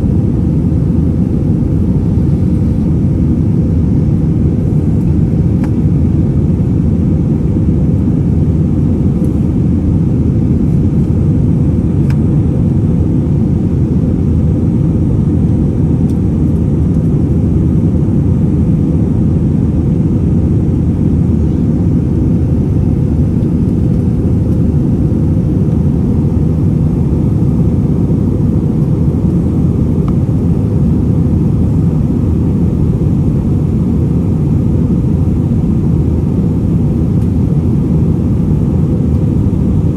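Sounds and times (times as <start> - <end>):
airliner engines rumbling in cabin: 0.0 - 39.9.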